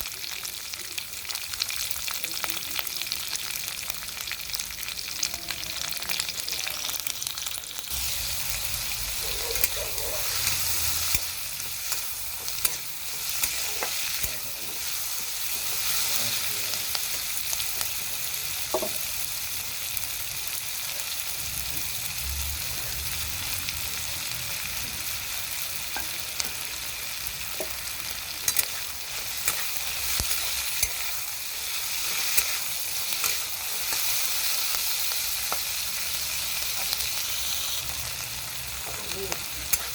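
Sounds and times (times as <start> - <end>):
food sizzling in hot oil: 0.0 - 39.9
spatula scraping pan: 7.9 - 16.2, 27.6 - 34.6.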